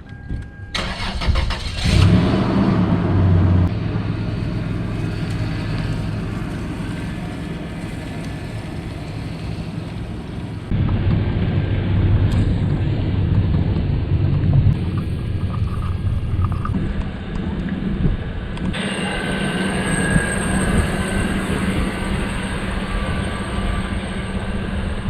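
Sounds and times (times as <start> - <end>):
car engine cranking and starting: 0.0 - 10.9
car engine running: 0.8 - 25.0.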